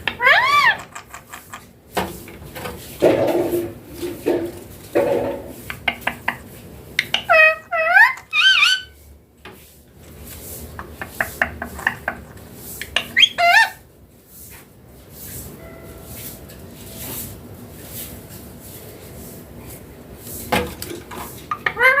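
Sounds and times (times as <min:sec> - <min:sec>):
parrot gliding call: 0:00.2 - 0:00.8, 0:07.1 - 0:09.0, 0:13.0 - 0:13.8, 0:21.6 - 0:22.0.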